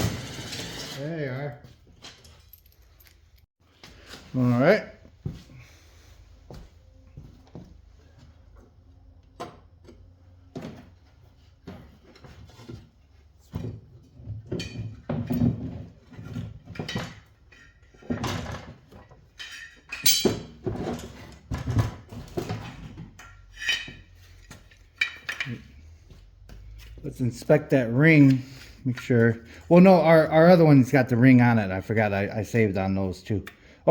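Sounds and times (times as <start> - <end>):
tools and metal parts clanking: 0.0 - 3.5, 13.5 - 29.8.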